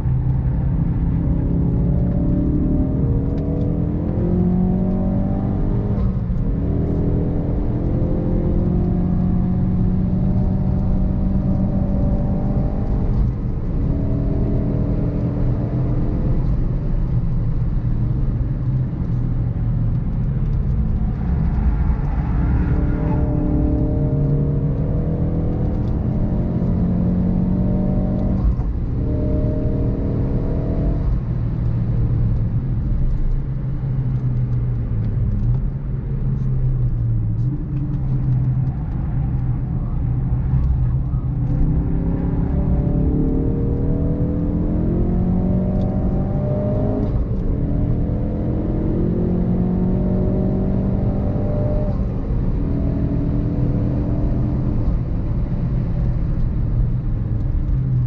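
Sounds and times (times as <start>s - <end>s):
car engine revving hard: 42.0s - 52.0s.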